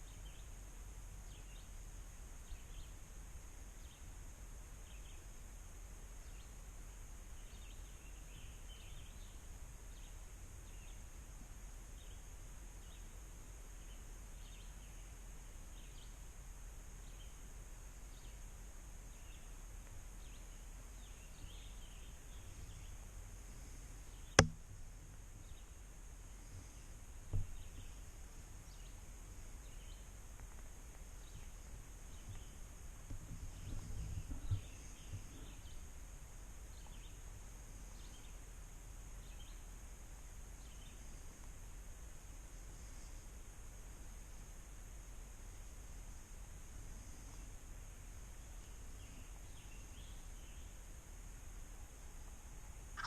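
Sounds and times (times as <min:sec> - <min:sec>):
faint bird chirps: 0:07.3 - 0:11.1, 0:17.0 - 0:18.5, 0:48.4 - 0:50.9, 0:51.8 - 0:53.0
sharp click: 0:24.4 - 0:24.6.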